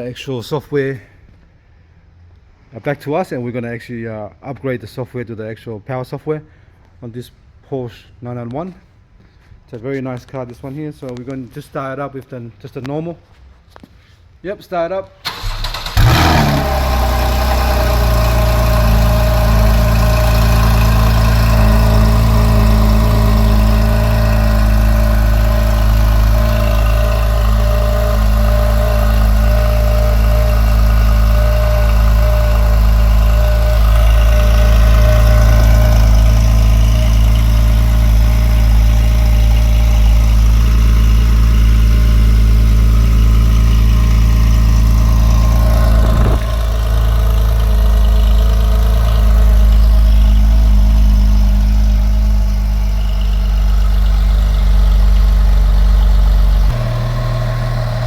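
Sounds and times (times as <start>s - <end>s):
car engine starting and idling: 15.2s - 58.0s.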